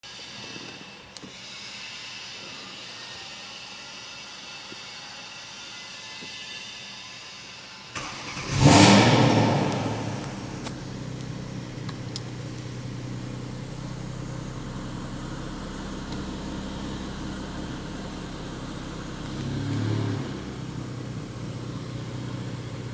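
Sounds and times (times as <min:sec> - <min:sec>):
car engine starting and idling: 0:08.0 - 0:22.9.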